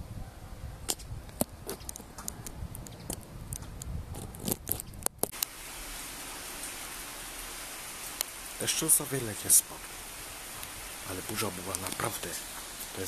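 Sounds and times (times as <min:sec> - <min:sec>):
sharp clicks and crackles: 0:00.8 - 0:05.5, 0:10.6 - 0:12.7
light rain on wet paving: 0:00.9 - 0:13.0.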